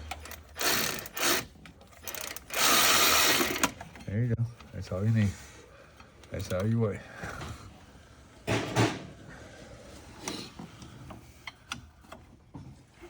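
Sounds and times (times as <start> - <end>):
tools clicking and knocking: 0.0 - 4.1.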